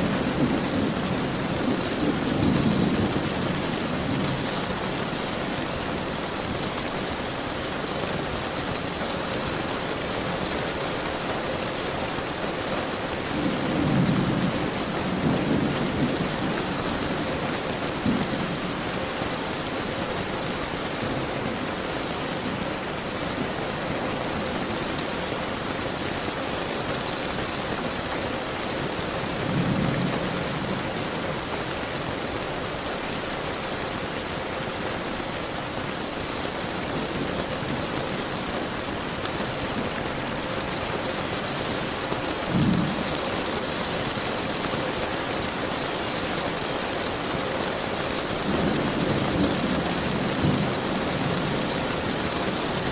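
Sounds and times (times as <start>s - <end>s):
low thunder rumbles: 0.0s - 6.5s, 13.3s - 19.6s, 48.4s - 52.9s
heavy rain hissing: 0.0s - 52.9s.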